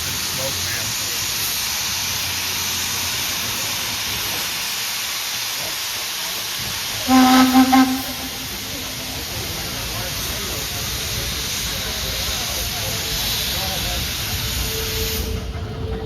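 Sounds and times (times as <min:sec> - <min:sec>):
steady hiss of steam: 0:00.0 - 0:15.8
steam locomotive whistle blasts: 0:07.0 - 0:09.3, 0:14.6 - 0:15.6.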